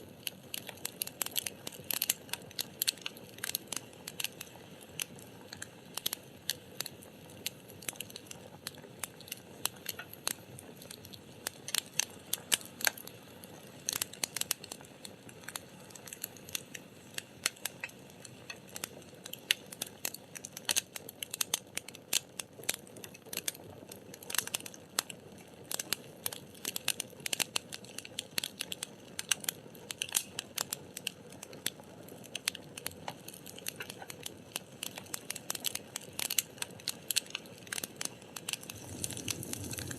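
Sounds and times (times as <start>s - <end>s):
fire crackling and popping: 0.0s - 39.9s
low steady hiss: 35.4s - 39.9s.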